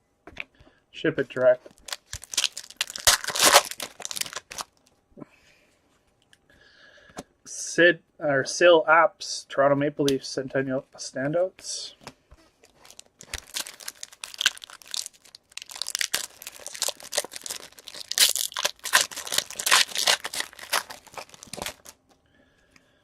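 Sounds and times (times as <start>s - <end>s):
foil wrappers tearing and crinkling: 1.7s - 4.8s, 12.6s - 22.0s.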